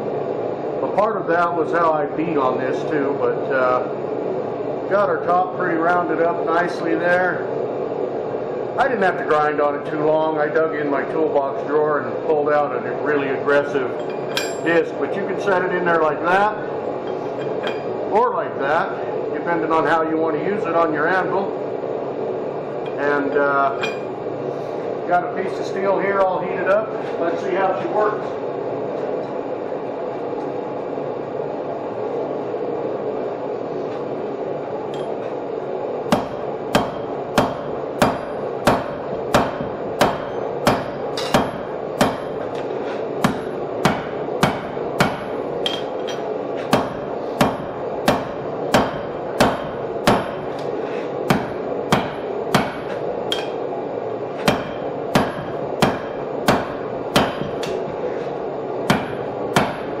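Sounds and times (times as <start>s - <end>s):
hammer striking hot steel: 14.0s - 14.7s, 23.7s - 24.2s, 36.1s - 53.7s, 54.3s - 58.1s, 58.8s - 60.0s.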